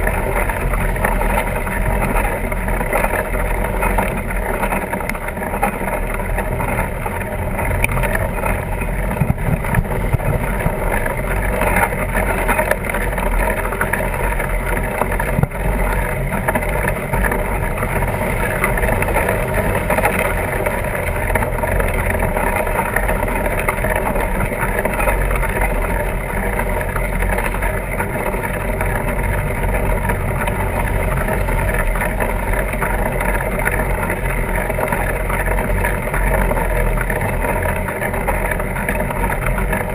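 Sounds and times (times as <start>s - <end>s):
tires rolling rumble: 0.0s - 39.9s
wind rush on microphone: 6.5s - 13.8s.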